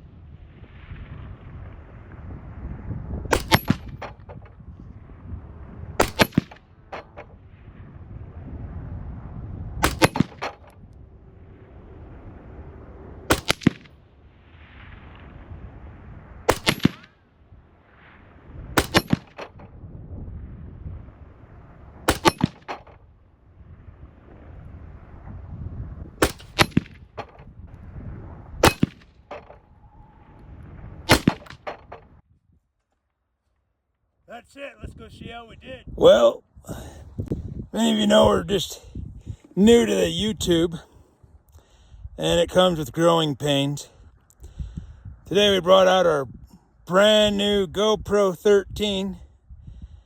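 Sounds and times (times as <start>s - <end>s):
rifle shots: 3.3s - 4.5s, 6.0s - 7.4s, 9.8s - 10.8s, 13.3s - 14.0s, 16.5s - 17.2s, 18.7s - 19.7s, 22.0s - 23.0s, 26.2s - 27.4s, 28.6s - 29.6s, 31.1s - 32.1s.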